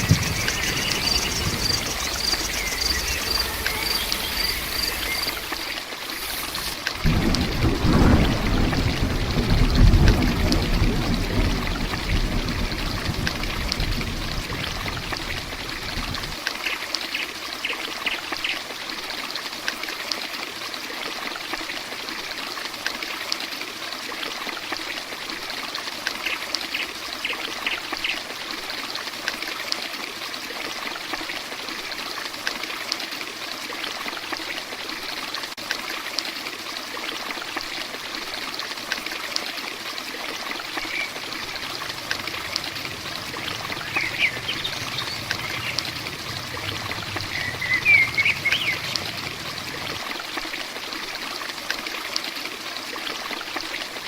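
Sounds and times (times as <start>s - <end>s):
low rumble: 0.0s - 5.6s, 41.0s - 50.0s
heavy rain falling: 0.0s - 16.4s, 40.4s - 50.4s
water running and dripping: 0.0s - 16.6s, 36.5s - 54.0s.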